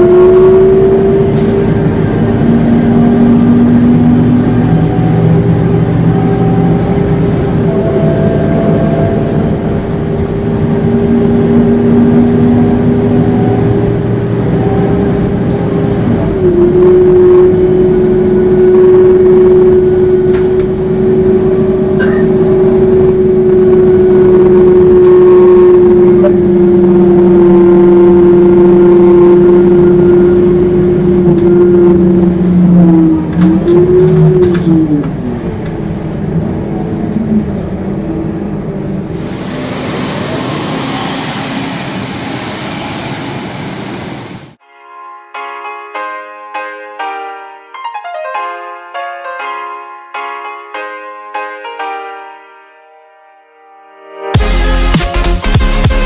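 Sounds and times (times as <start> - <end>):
bus engine howling: 0.0 - 44.6.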